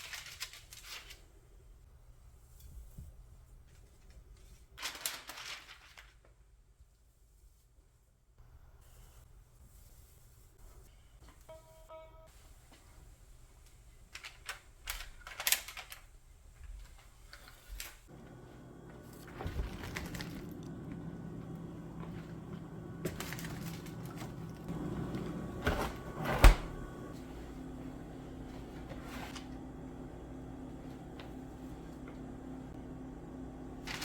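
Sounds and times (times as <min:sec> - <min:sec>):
appliance hum: 0:17.2 - 0:34.0.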